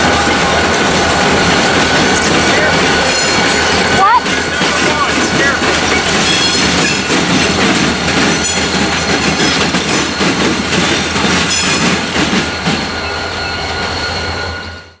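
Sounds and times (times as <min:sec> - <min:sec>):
wheels clacking over rail joints: 0:00.0 - 0:12.9
diesel locomotive running low: 0:00.0 - 0:15.0
train wheels squealing: 0:06.2 - 0:07.1, 0:11.5 - 0:15.0.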